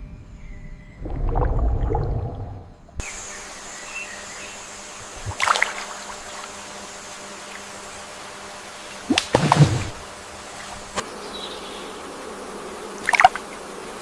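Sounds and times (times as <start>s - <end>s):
steady ambient hiss: 0.0s - 14.0s
water splashing and sloshing: 5.2s - 6.5s, 9.0s - 11.0s.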